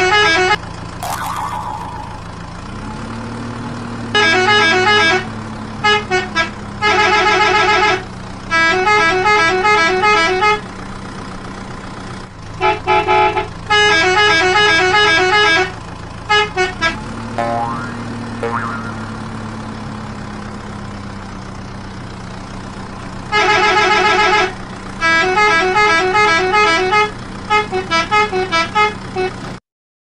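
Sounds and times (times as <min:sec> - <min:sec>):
quick toots: 0:01.0 - 0:02.5.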